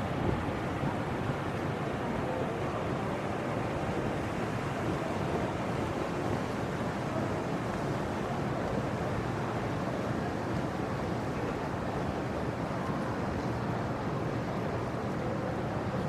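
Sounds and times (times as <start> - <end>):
rushing outdoor noise: 0.0 - 16.0.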